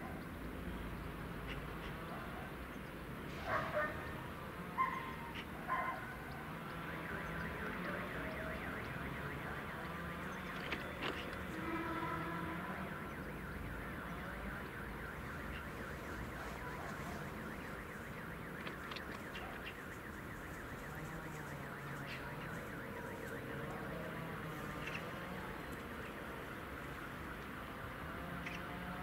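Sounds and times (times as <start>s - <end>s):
sharp clicks: 28.4s - 28.7s.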